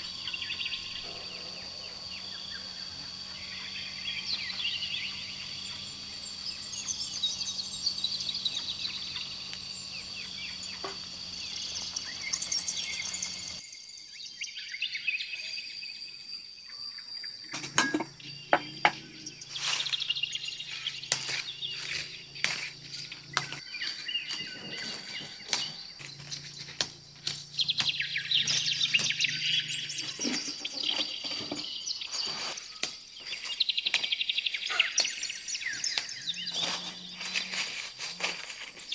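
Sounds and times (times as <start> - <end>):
birds chirping: 0.0 - 13.6, 17.5 - 38.9
high insect drone: 0.0 - 13.7, 15.9 - 38.9.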